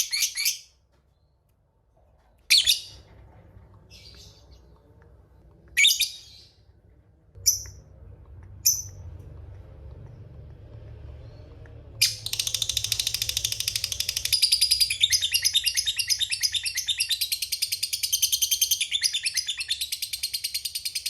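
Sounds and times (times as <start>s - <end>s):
faint low hum: 0.9s - 20.5s
lovebird high-pitched calls: 12.0s - 21.0s.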